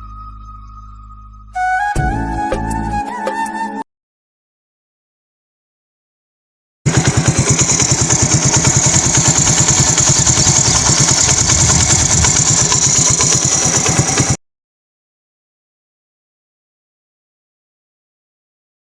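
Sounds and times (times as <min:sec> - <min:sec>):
motorcycle engine running: 0:06.9 - 0:14.4.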